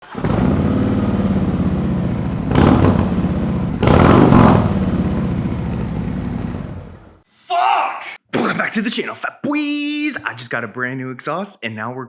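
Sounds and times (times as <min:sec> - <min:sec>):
motorcycle idling and revving: 0:00.0 - 0:07.2.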